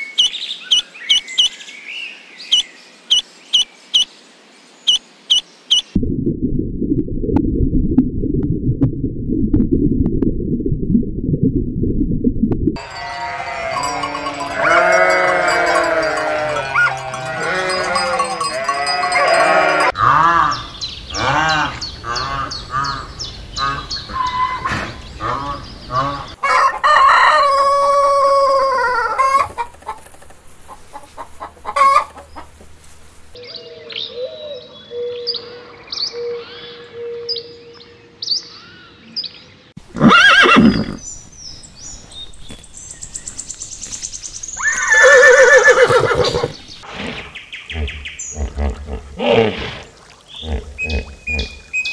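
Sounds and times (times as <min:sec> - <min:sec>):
rooster crowing: 0:12.8 - 0:20.0, 0:26.4 - 0:29.6
sheep bleating: 0:12.8 - 0:20.6
farm animal calls: 0:12.8 - 0:32.7, 0:44.6 - 0:51.8
hens clucking: 0:21.2 - 0:32.9.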